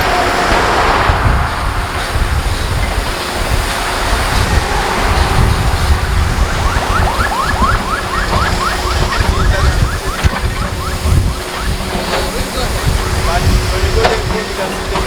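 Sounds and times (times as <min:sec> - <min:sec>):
road traffic rumbling: 0:00.0 - 0:15.0
wind buffeting microphone: 0:00.0 - 0:15.0
rising electronic chirps: 0:06.4 - 0:13.7.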